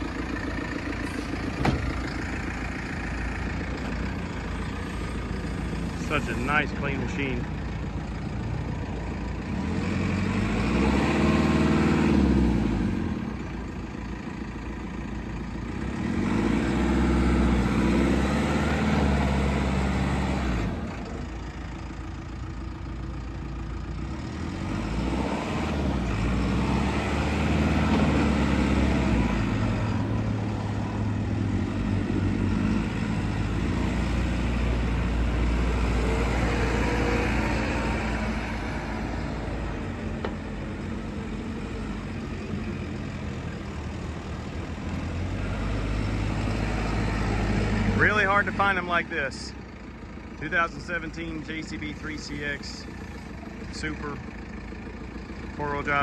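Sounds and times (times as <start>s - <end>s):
backhoe diesel engine running: 0.0s - 56.0s.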